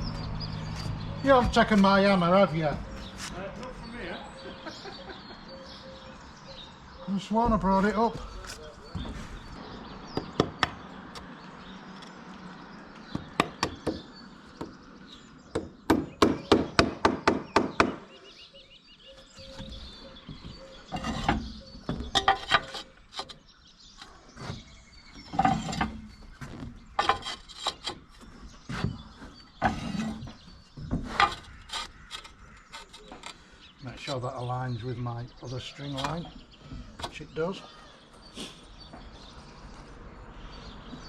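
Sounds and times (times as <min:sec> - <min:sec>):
hammer knocking on roof tiles: 0:10.2 - 0:10.8, 0:13.1 - 0:14.8, 0:15.5 - 0:18.1.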